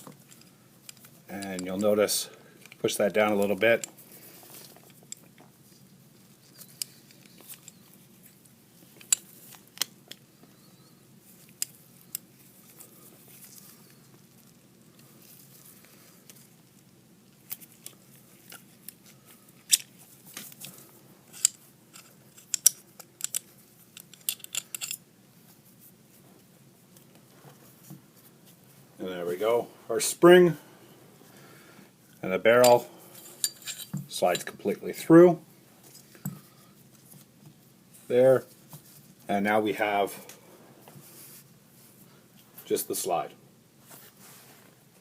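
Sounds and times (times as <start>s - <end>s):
metallic clicks and scrapes: 3.4s - 10.2s, 17.4s - 25.0s, 32.6s - 34.6s.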